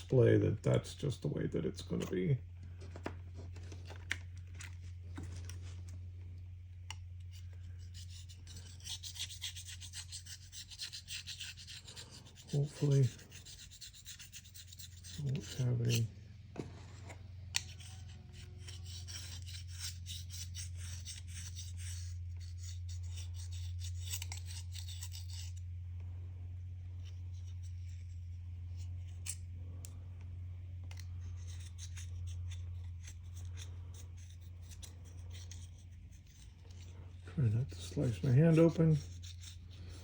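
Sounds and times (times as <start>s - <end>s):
steady low hum: 0.0s - 40.0s
blade scraping glass: 7.3s - 16.1s, 17.6s - 25.6s, 30.9s - 37.0s, 37.7s - 40.0s.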